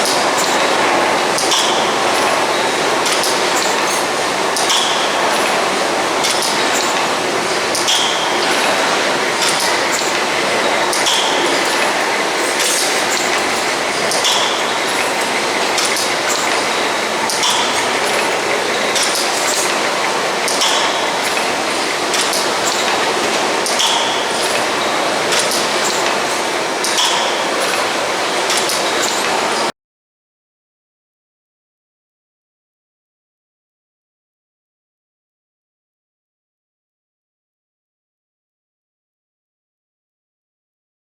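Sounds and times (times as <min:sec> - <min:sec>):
steam engine running rhythmically: 0:00.0 - 0:29.7.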